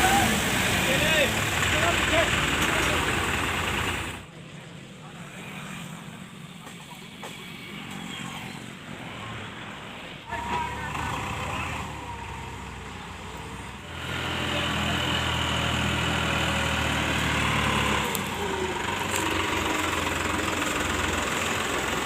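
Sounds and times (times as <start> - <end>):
diesel engine revving: 0.0 - 4.3, 10.2 - 22.0.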